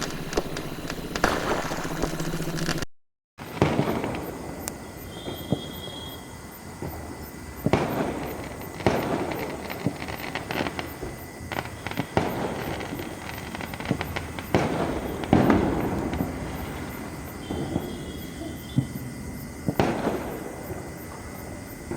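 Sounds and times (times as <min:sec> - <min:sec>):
fireworks bangs: 0:00.0 - 0:21.9
fireworks crackling: 0:00.0 - 0:21.9.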